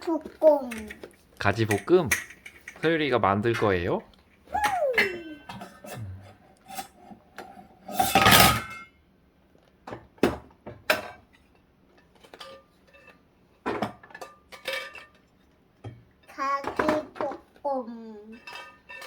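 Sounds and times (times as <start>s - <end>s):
toys clattering: 0.0s - 3.8s
toy pots and utensils knocking: 1.6s - 3.8s.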